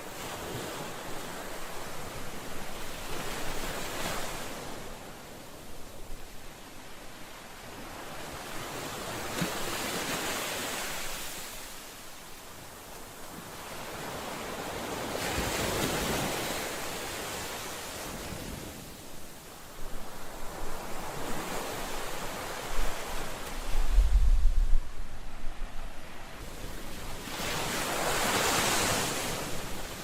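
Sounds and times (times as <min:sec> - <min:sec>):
ocean waves breaking on shore: 0:00.0 - 0:30.0.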